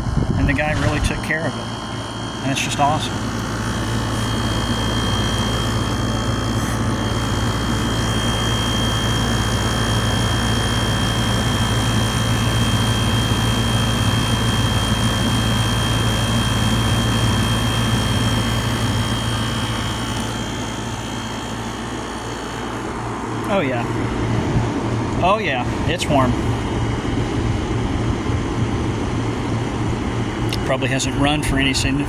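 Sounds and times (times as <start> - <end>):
fan whoosh: 0.0 - 8.3, 20.4 - 30.0
compressor hum: 0.0 - 32.0.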